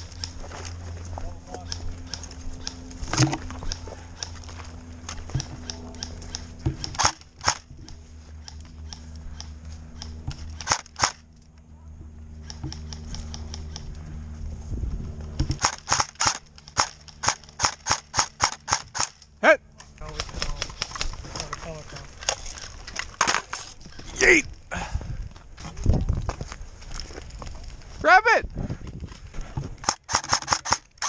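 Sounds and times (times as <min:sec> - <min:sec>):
airsoft guns snapping shots: 0:05.3 - 0:11.2, 0:15.5 - 0:19.3, 0:29.8 - 0:31.0.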